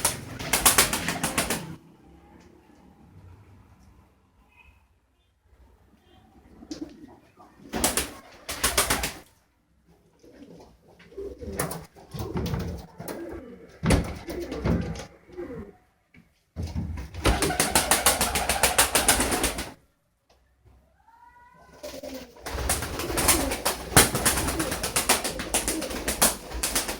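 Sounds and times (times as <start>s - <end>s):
wings fluttering rapidly: 0.0s - 1.8s, 7.7s - 9.3s, 17.2s - 19.8s, 21.7s - 26.9s
pigeons cooing: 10.0s - 15.8s, 21.7s - 26.9s.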